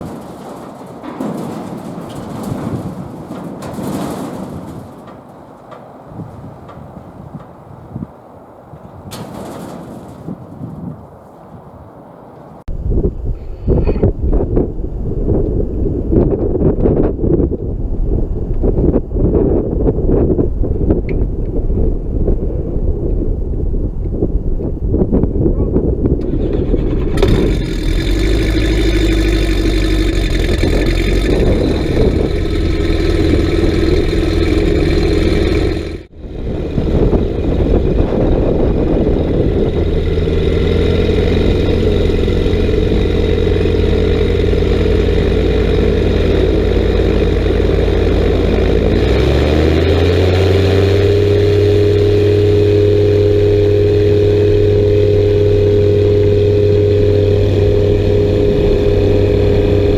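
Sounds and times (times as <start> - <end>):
light aircraft engine and propeller: 26.2 - 59.9.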